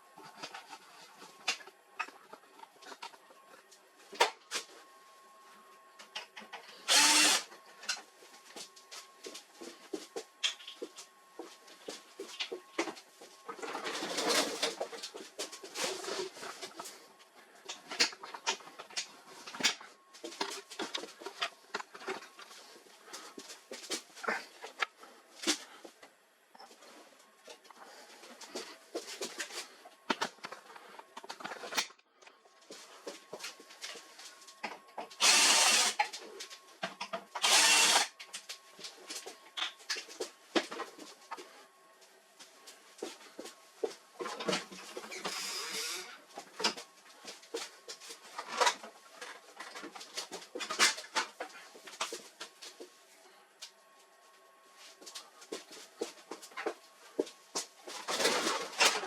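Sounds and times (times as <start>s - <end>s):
power screwdriver running: 6.9s - 7.5s, 35.2s - 36.1s, 37.4s - 38.1s, 45.3s - 46.1s.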